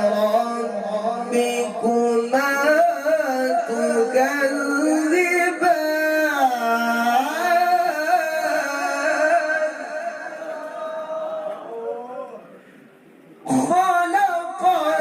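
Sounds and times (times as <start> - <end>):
man reciting melodically: 0.0 - 11.5, 13.4 - 15.0.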